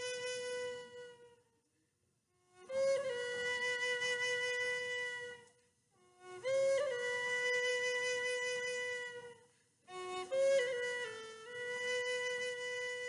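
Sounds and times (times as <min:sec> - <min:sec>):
flute playing slow notes: 0:00.0 - 0:01.6, 0:02.4 - 0:13.0.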